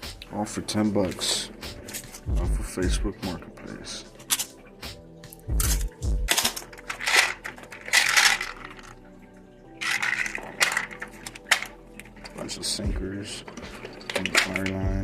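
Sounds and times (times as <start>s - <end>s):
metal fishing tackle rattling: 5.6s - 9.2s, 9.8s - 12.5s, 13.4s - 14.9s.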